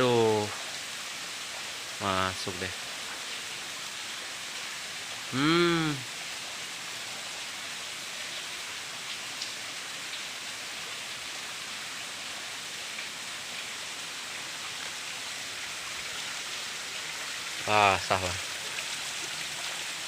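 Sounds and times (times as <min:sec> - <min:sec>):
waterfall and stream rushing: 0:00.0 - 0:20.0
man giving loud call: 0:05.3 - 0:06.0.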